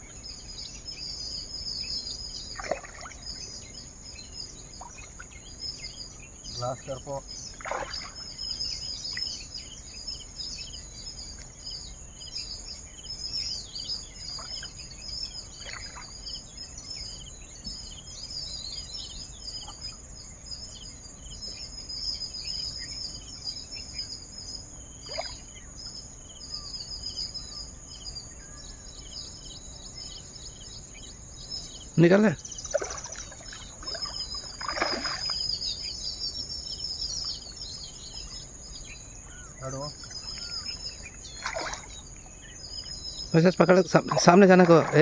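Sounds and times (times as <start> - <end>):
small birds chirping and twittering: 0.0 - 45.0.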